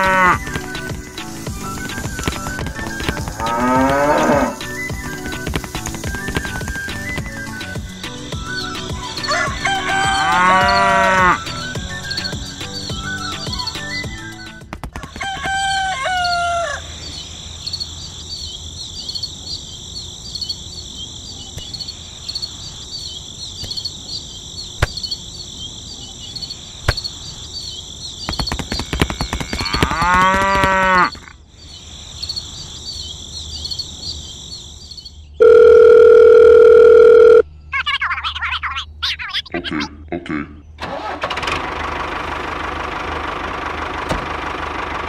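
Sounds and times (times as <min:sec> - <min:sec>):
cow mooing: 0:00.0 - 0:00.5, 0:02.8 - 0:04.6, 0:09.3 - 0:11.5, 0:29.5 - 0:31.2
farm animal call: 0:00.0 - 0:07.5, 0:08.5 - 0:14.0, 0:15.2 - 0:17.2, 0:28.6 - 0:31.3, 0:35.4 - 0:41.3
high chirping background: 0:00.0 - 0:40.8
electronic phone ringing: 0:35.4 - 0:38.2.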